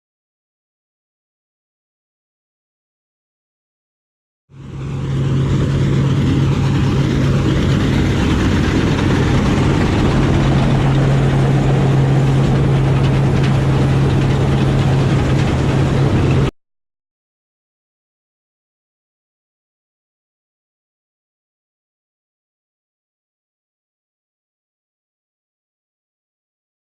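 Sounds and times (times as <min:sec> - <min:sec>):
diesel engine running: 0:04.6 - 0:16.5.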